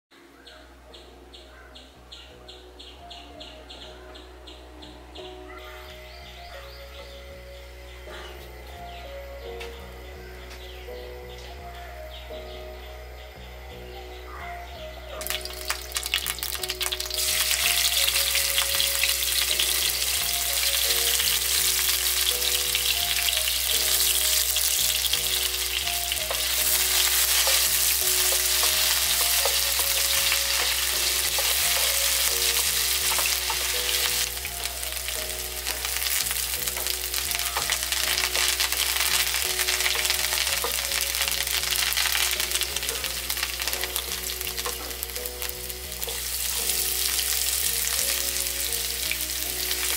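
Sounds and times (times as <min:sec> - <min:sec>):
food sizzling in hot oil: 0:15.2 - 0:49.9.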